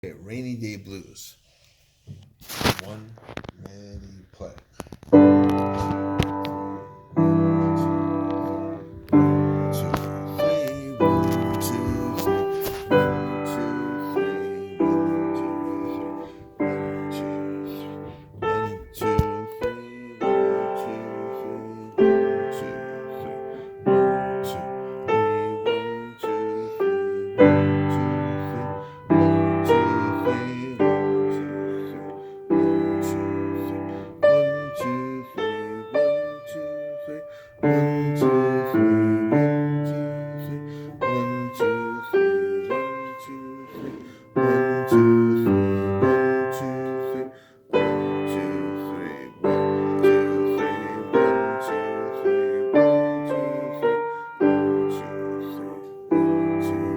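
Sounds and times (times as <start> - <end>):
piano playing blues chords: 5.0 - 56.9.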